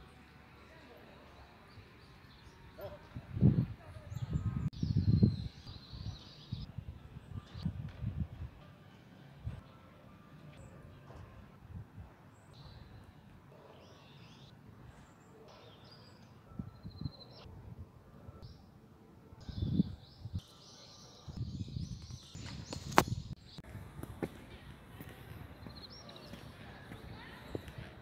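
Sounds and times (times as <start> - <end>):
small birds chirping: 0.0 - 6.7.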